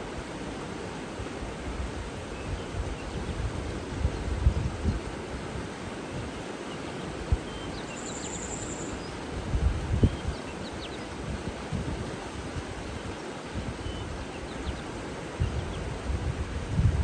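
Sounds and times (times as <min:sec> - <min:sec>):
wind buffeting microphone: 0:01.6 - 0:06.4, 0:09.2 - 0:17.0
faint bird chirps: 0:07.4 - 0:09.2.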